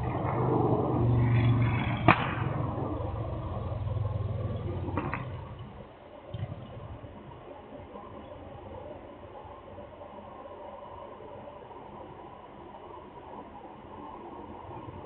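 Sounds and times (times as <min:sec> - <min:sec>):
motorcycle engine running: 0:00.0 - 0:05.8
exhaust pop: 0:00.1 - 0:03.1, 0:04.4 - 0:05.7.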